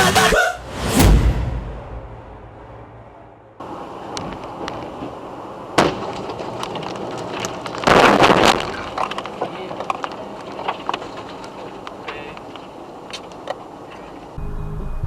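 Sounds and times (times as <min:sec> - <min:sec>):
road noise: 0:00.0 - 0:15.0
sharp bang: 0:00.6 - 0:03.6
car crash with breaking: 0:05.8 - 0:09.0.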